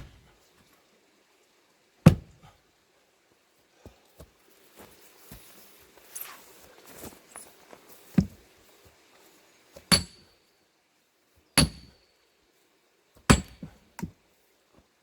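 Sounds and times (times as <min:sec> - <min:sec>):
hammer striking steel wedge: 0:02.1 - 0:02.4, 0:09.9 - 0:10.2, 0:11.6 - 0:12.0, 0:13.3 - 0:13.7.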